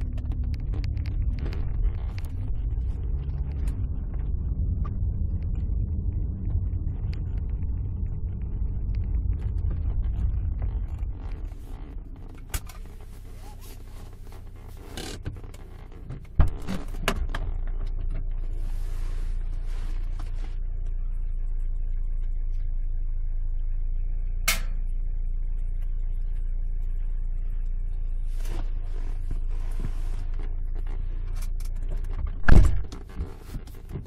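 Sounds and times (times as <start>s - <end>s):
clicks and creaks: 0.0s - 18.5s, 28.5s - 34.0s
car engine and road drone: 0.0s - 34.0s.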